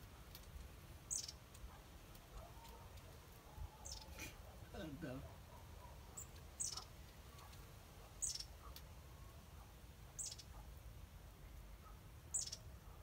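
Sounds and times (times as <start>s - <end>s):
small bird calling: 1.1s - 1.5s, 3.6s - 9.3s, 10.1s - 10.7s, 11.7s - 12.8s.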